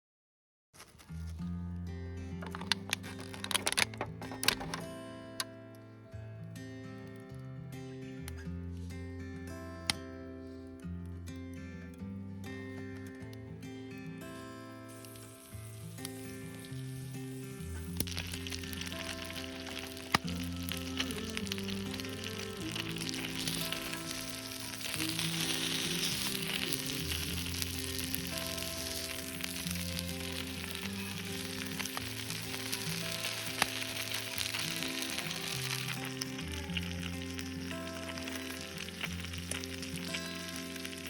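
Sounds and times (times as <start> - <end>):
background music: 1.6 - 41.0
food frying and sizzling: 2.4 - 4.8, 14.8 - 41.0.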